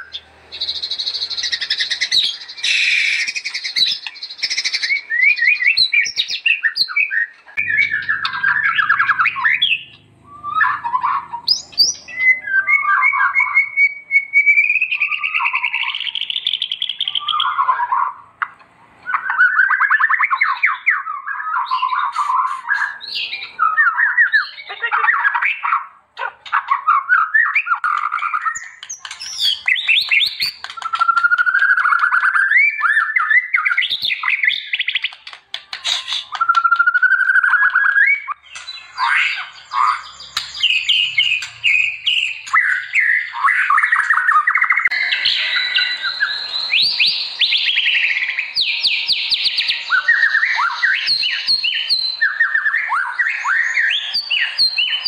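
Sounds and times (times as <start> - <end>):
songbird singing trills: 0.0 - 55.0.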